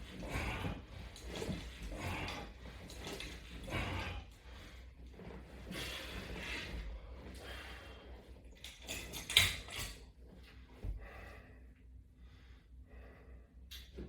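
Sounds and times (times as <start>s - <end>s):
man breathing hard: 0.1s - 1.0s, 3.6s - 4.9s, 10.8s - 13.7s.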